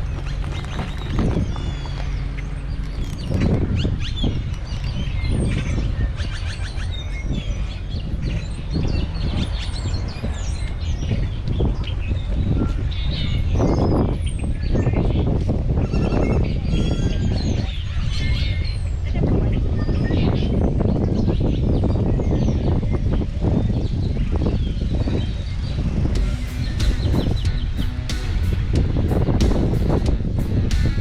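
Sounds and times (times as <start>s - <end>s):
birds chirping: 0.0s - 31.0s
steady low rumble: 0.0s - 31.0s.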